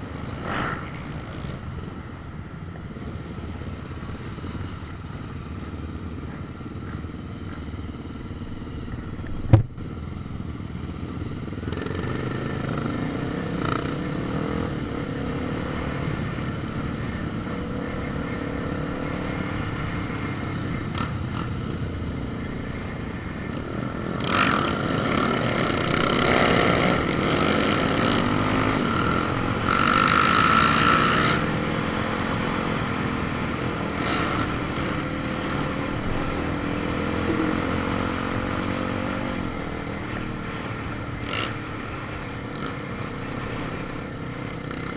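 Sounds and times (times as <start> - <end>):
vehicle engine rumbling: 0.0 - 44.9.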